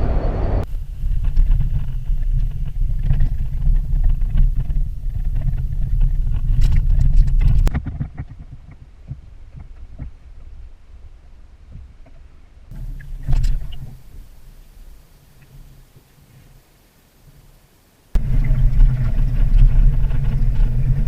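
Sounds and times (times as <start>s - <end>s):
road and engine rumble in car: 0.0s - 10.1s, 12.7s - 15.8s, 18.2s - 21.0s.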